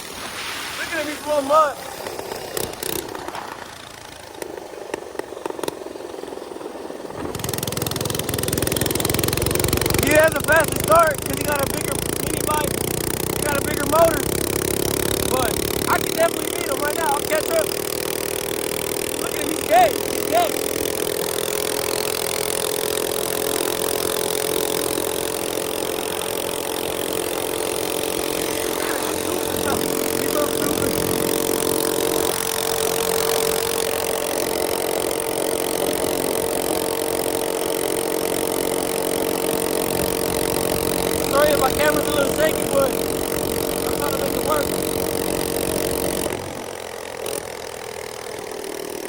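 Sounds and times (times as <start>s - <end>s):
rushing noise: 0.0s - 4.4s
small engine running: 0.0s - 49.0s.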